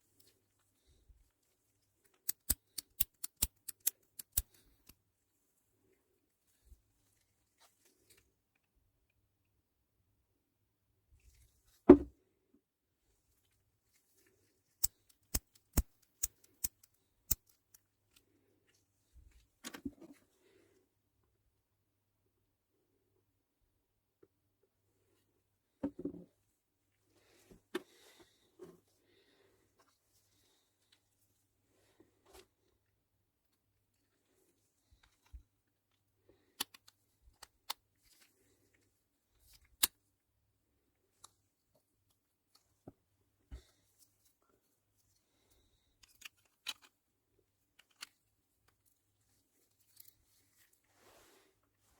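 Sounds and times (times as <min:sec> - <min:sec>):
handling small parts: 0:02.1 - 0:05.0, 0:45.9 - 0:50.9.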